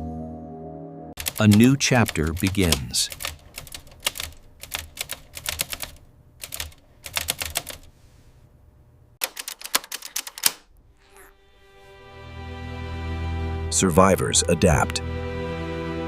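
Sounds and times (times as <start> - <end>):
keyboard typing clicks: 1.2 - 7.9.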